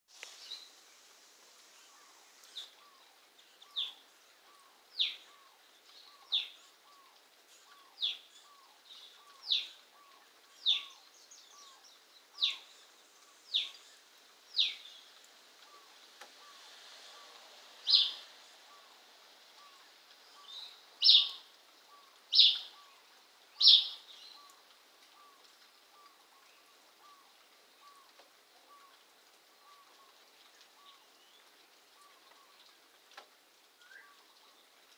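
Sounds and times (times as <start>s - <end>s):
bird shrill calls: 17.9s - 18.8s, 20.4s - 21.4s, 22.0s - 22.9s, 23.6s - 24.5s.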